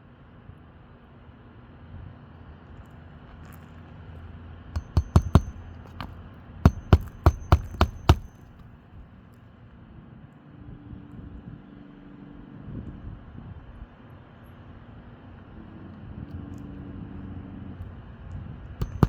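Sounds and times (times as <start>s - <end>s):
hammer striking roofing nails: 4.8s - 6.1s, 6.7s - 8.6s.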